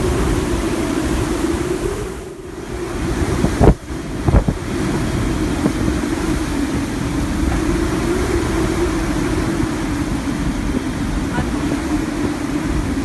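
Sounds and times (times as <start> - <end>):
wind roaring on microphone: 0.0 - 13.0
gust thumps on microphone: 3.4 - 4.7.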